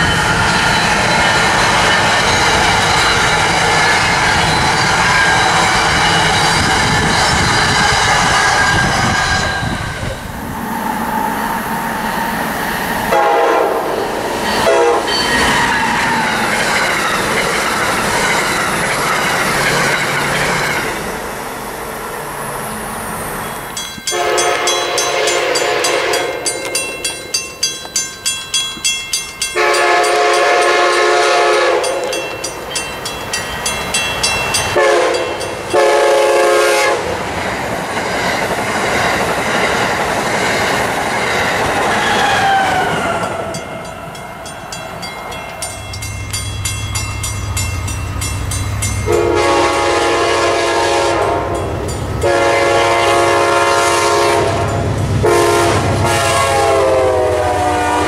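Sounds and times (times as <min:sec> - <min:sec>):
crossing bell ringing: 0:00.0 - 0:08.0, 0:08.8 - 0:10.2, 0:13.2 - 0:20.9, 0:23.3 - 0:36.5, 0:43.2 - 0:55.3
rail clatter: 0:00.0 - 0:22.2, 0:23.3 - 0:56.6
trains passing at speed: 0:00.0 - 0:58.0
train horn blasts: 0:13.1 - 0:14.0, 0:14.6 - 0:15.2, 0:24.1 - 0:26.5, 0:29.6 - 0:32.2, 0:34.8 - 0:37.2, 0:49.0 - 0:58.0.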